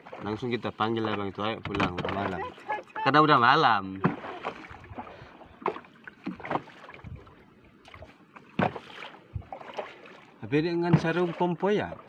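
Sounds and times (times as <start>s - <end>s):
water washing against hull: 0.0s - 12.0s
knocks and clatters: 1.0s - 2.4s.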